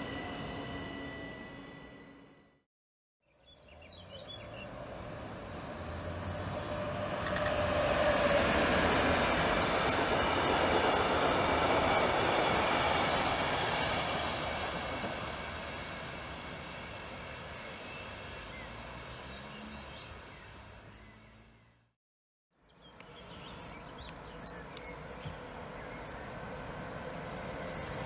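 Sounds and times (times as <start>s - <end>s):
passenger train rolling past: 0.0s - 2.6s, 4.6s - 21.0s, 25.0s - 28.0s.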